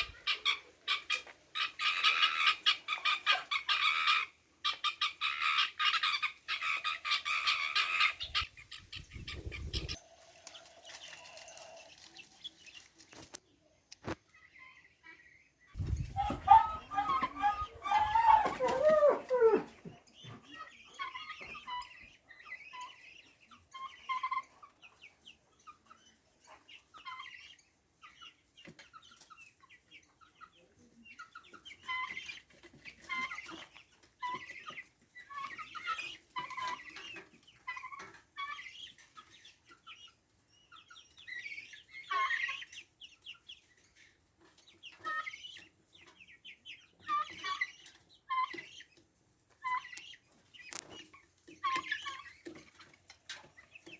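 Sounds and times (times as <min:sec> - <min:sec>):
fowl clucking: 0:00.0 - 0:11.9, 0:14.0 - 0:25.0, 0:41.4 - 0:42.8.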